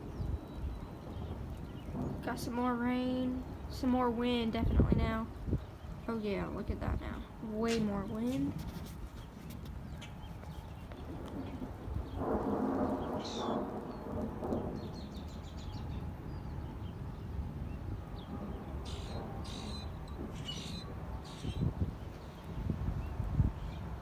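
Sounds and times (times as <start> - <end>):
wind gusting against microphone: 0.0 - 24.0
birds chirping and trilling: 7.4 - 12.2, 12.9 - 16.7, 18.1 - 22.6.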